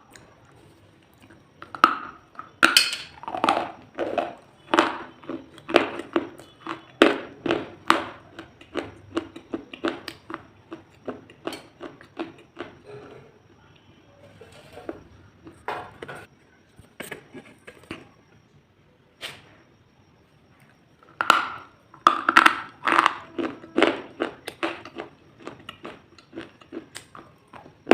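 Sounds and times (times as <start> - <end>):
crisp crunching and crackling: 22.0 - 27.9.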